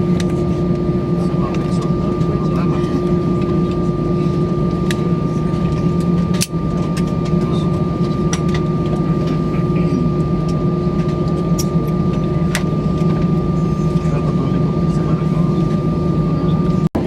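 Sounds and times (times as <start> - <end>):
aircraft cabin engine rumble: 0.0 - 17.0
high engine whine: 0.0 - 17.0.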